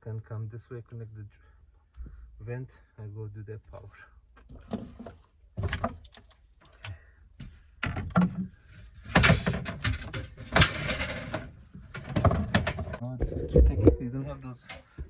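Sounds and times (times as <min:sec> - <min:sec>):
objects knocking and clattering: 0:04.5 - 0:06.4, 0:07.4 - 0:15.0
rustling and scraping: 0:04.5 - 0:06.6, 0:07.4 - 0:15.0.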